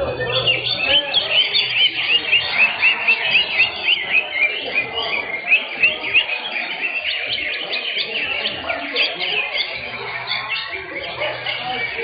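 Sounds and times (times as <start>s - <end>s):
birds chirping and whistling: 0.0s - 12.0s.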